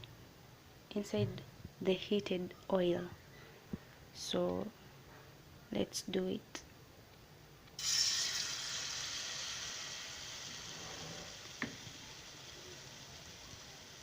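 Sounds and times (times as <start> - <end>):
food sizzling in hot oil: 7.8 - 14.0.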